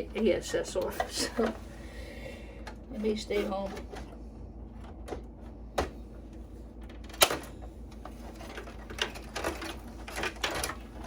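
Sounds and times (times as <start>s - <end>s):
low steady hum: 0.0s - 11.0s
computer parts clicking and knocking: 6.8s - 7.6s, 8.2s - 10.9s.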